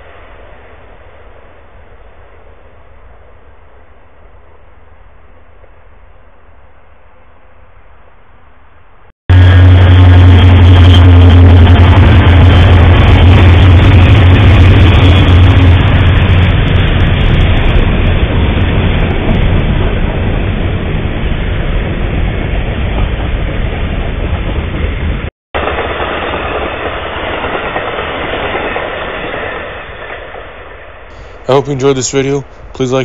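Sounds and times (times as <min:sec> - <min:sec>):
train cars rolling past: 0:08.7 - 0:33.0
diesel locomotive rumble: 0:09.3 - 0:29.5, 0:31.1 - 0:33.0.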